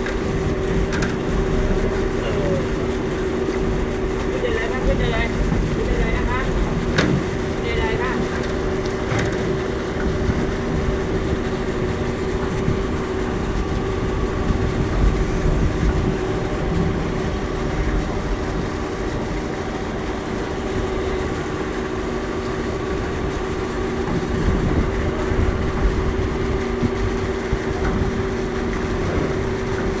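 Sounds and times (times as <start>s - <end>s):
low rumble: 0.0s - 21.2s
electric ferry hum: 0.0s - 30.0s.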